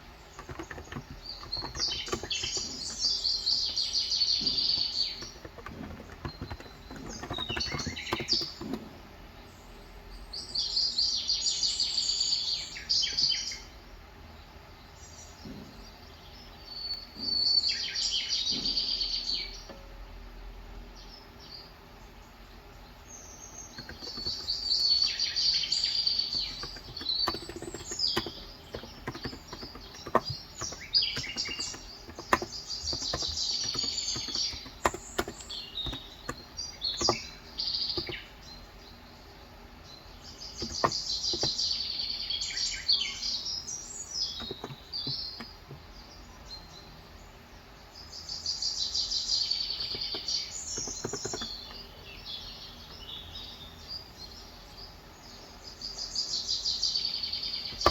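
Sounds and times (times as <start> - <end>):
birds singing: 0.0 - 20.0, 20.7 - 57.9
keyboard keystroke clicks: 0.4 - 3.8, 4.4 - 8.9, 23.8 - 25.1, 26.3 - 38.2, 40.6 - 41.6, 44.3 - 45.8, 49.8 - 51.8.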